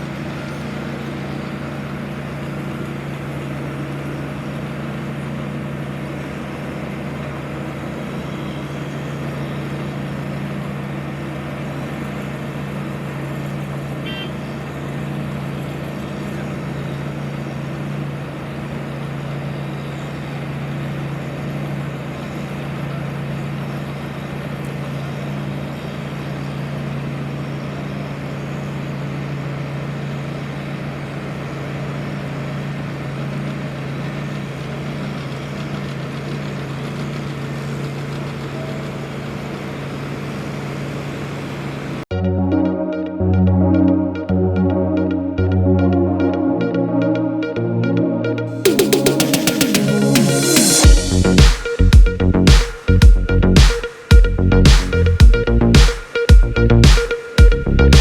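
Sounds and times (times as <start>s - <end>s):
heavy machinery engine droning: 0.0s - 53.6s
short high chirp: 48.5s - 58.0s.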